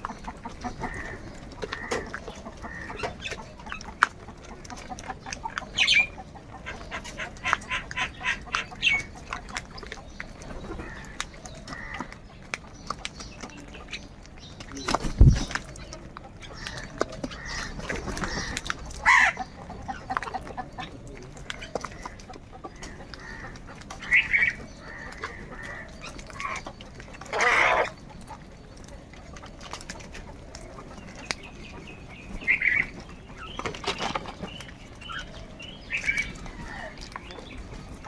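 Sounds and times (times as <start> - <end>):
crows cawing: 0.8 - 3.1, 10.8 - 12.1, 23.2 - 23.5, 24.1 - 26.6.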